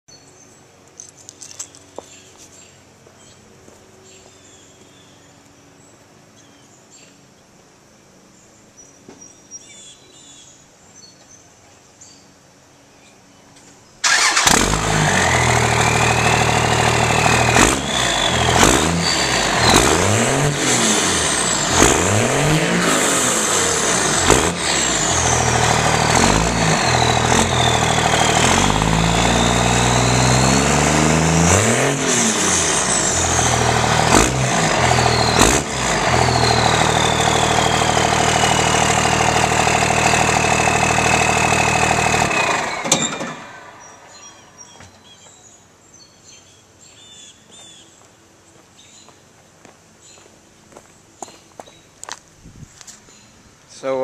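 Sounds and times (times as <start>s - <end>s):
diesel engine starting and revving: 14.0s - 44.7s.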